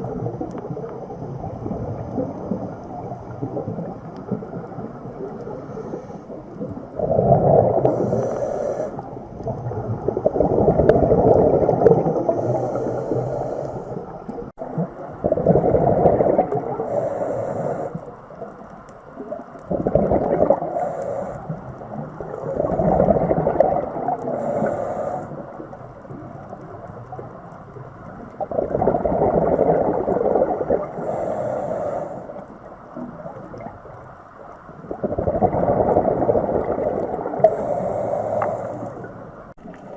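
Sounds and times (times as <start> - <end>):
underwater ocean swells rushing: 0.0 - 39.9
faint hissing bursts: 7.6 - 9.6, 12.1 - 14.4, 16.3 - 18.7, 20.5 - 22.0, 24.2 - 25.8, 30.9 - 33.1, 37.2 - 39.9.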